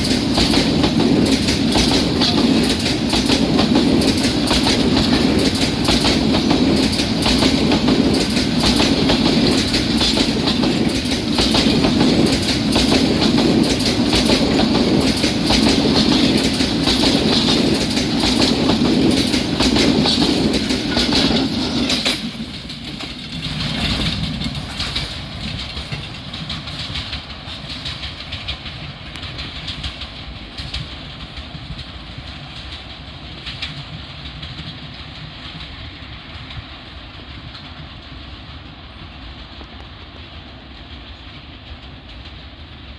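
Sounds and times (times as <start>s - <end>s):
train wheels clacking over rail joints: 0.0s - 42.7s
train rumble: 0.0s - 42.9s.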